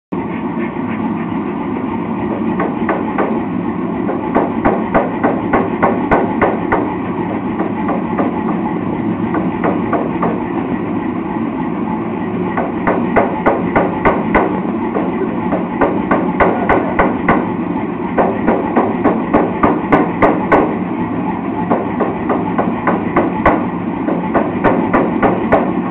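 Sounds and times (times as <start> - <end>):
rushing background noise: 0.2 - 25.9
hammer striking steel on anvil: 12.6 - 17.6, 18.2 - 20.8.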